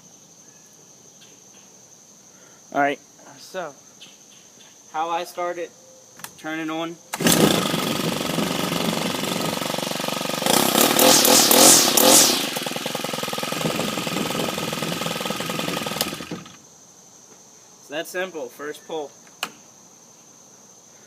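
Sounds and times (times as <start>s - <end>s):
string trimmer engine: 7.2s - 16.6s.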